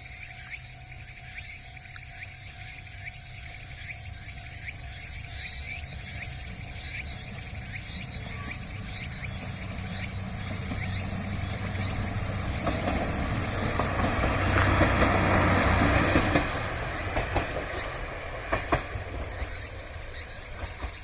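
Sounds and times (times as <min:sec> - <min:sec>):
diesel railcar engine drone: 0:00.0 - 0:21.0
wheels clacking over rail joints: 0:03.1 - 0:21.0.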